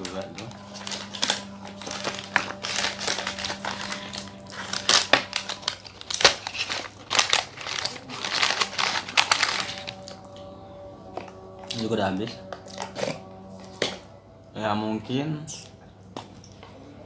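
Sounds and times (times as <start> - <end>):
food packaging crinkling: 0.0 - 10.4, 11.1 - 14.0.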